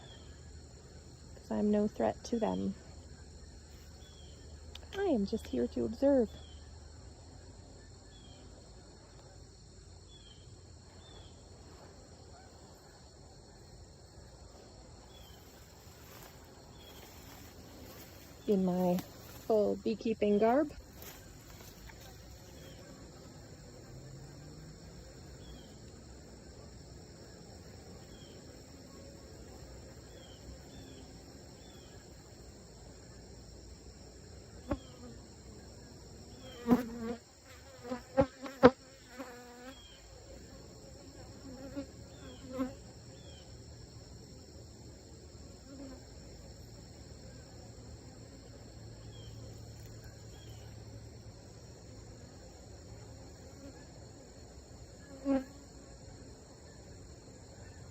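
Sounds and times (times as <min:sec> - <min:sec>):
high-pitched insect trill: 0:00.0 - 0:08.8, 0:13.4 - 0:53.8
bees buzzing: 0:14.9 - 0:32.2, 0:36.3 - 0:42.8.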